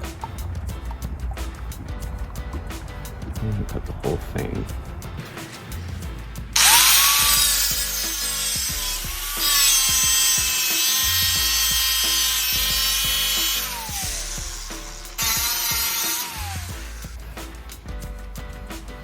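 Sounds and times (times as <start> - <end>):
background music: 0.0 - 19.0
grinder cutting sheet metal: 6.6 - 17.2.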